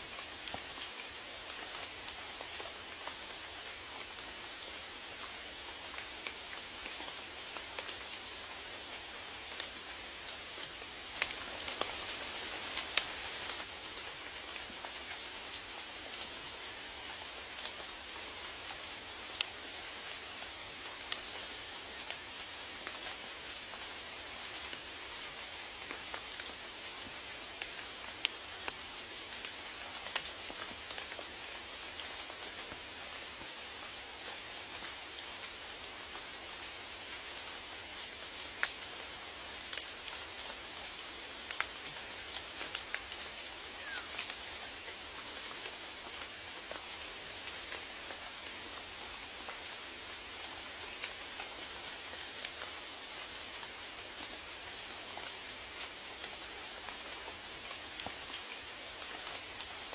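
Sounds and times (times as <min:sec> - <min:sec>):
steady rainfall hissing: 0:00.0 - 0:59.9
raindrop ticks: 0:39.6 - 0:40.2, 0:40.8 - 0:43.2.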